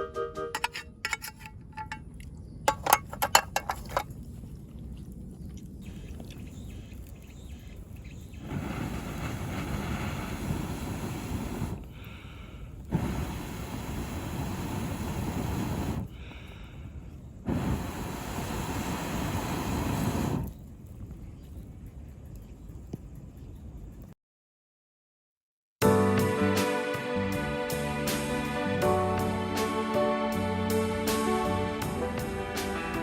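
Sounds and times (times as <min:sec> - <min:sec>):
sharp clinks and knocks: 0:00.6 - 0:04.2.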